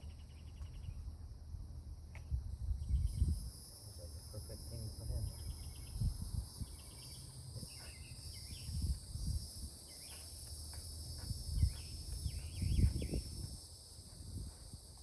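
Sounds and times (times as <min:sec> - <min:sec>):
bird chirps: 0:00.0 - 0:01.2, 0:02.2 - 0:03.4, 0:05.1 - 0:09.0, 0:09.8 - 0:10.8, 0:11.6 - 0:13.4
insects chirring: 0:00.0 - 0:15.0.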